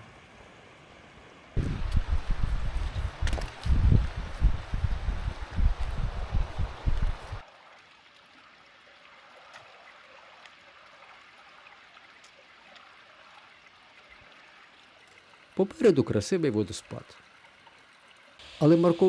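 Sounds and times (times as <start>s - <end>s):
wind buffeting microphone: 1.6s - 7.4s.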